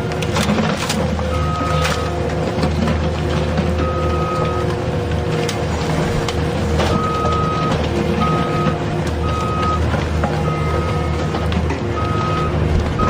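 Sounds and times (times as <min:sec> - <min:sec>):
low engine rumble: 0:00.0 - 0:13.0
vehicle reversing alarm beeping: 0:01.2 - 0:02.3, 0:03.7 - 0:04.8, 0:06.7 - 0:13.0.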